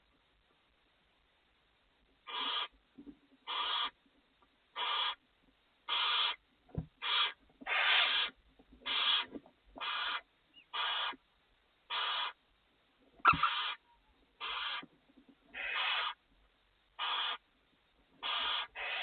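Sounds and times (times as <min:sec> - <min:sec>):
owl hissing snore call: 0:02.3 - 0:02.7, 0:03.5 - 0:03.9, 0:04.8 - 0:05.2, 0:05.9 - 0:06.4, 0:07.0 - 0:08.3, 0:08.9 - 0:11.2, 0:11.9 - 0:12.4, 0:13.3 - 0:13.8, 0:14.4 - 0:14.8, 0:15.6 - 0:16.2, 0:17.0 - 0:17.4, 0:18.2 - 0:19.0.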